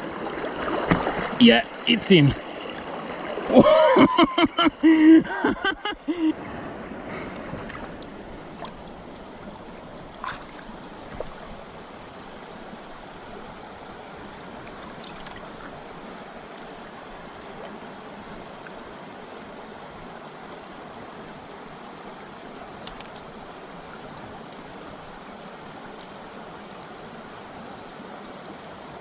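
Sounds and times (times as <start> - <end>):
river water rushing: 0.0 - 29.0
faint clicks: 22.8 - 23.2.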